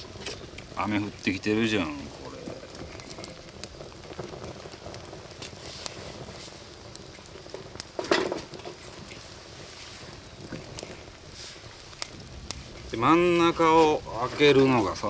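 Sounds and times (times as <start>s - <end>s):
light rain pattering: 0.0s - 15.0s
wood fire crackling: 0.0s - 15.0s.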